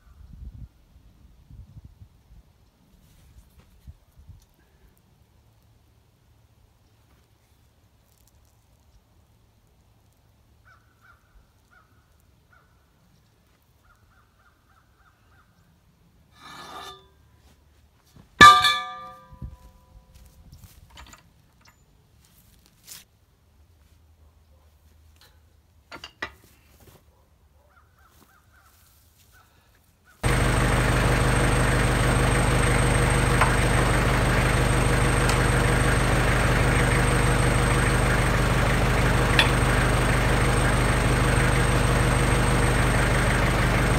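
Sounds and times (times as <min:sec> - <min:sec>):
tractor diesel engine running: 0:18.4 - 0:19.5, 0:30.2 - 0:43.9
high whine: 0:30.2 - 0:43.9.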